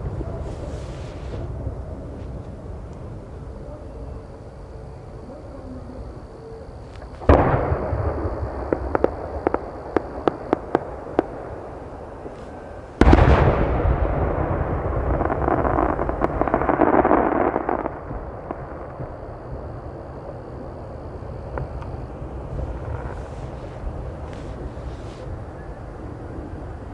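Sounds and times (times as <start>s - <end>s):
firework crackling tail: 0.0s - 3.6s, 6.0s - 26.9s
firework sharp cracks: 6.9s - 20.7s
firework shells booming: 7.0s - 25.3s.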